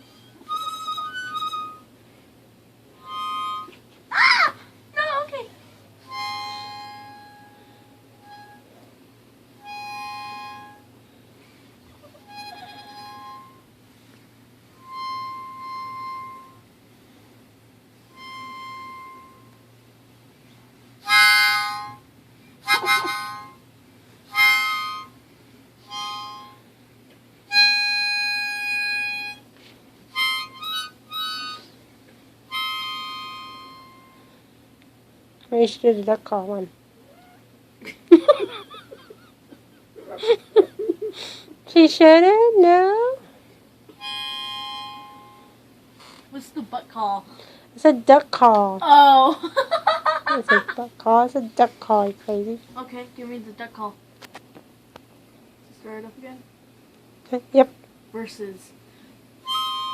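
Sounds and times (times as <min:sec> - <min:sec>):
harmonica playing: 0:00.0 - 0:02.0, 0:02.9 - 0:03.9, 0:06.0 - 0:08.8, 0:09.5 - 0:11.0, 0:12.0 - 0:13.8, 0:14.6 - 0:16.7, 0:18.0 - 0:19.8, 0:21.0 - 0:23.7, 0:24.3 - 0:25.2, 0:25.8 - 0:26.7, 0:27.4 - 0:31.8, 0:32.4 - 0:34.5, 0:43.9 - 0:46.2, 0:59.4 - 0:59.9.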